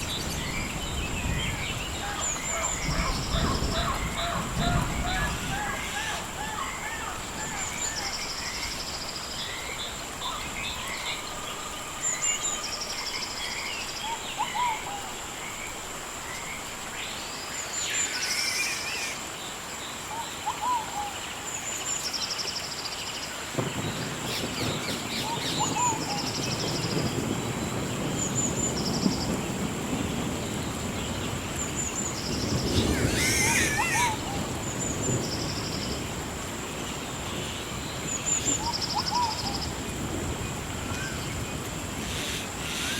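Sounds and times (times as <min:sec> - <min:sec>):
birds calling and chirping: 0:00.0 - 0:15.7, 0:30.1 - 0:36.0, 0:40.8 - 0:42.9.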